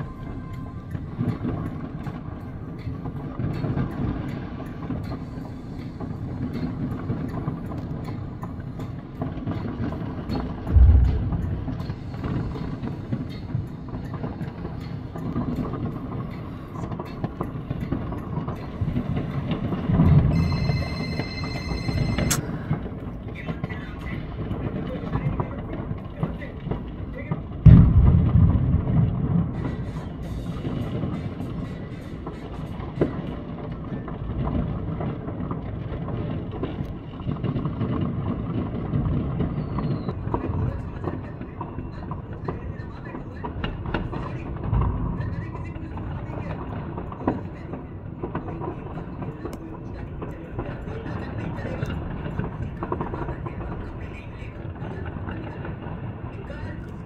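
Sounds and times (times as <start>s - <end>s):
distant fireworks rumble: 0.0s - 57.0s
fireworks cracks: 8.8s - 57.0s
sharp firework bang: 10.7s - 13.3s, 27.6s - 31.4s.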